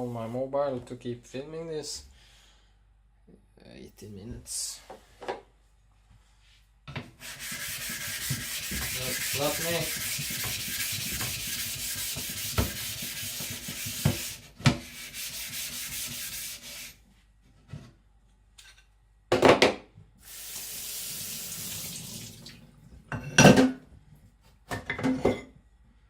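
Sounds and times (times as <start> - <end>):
knife rubbing on wet whetstone: 7.2 - 17.0.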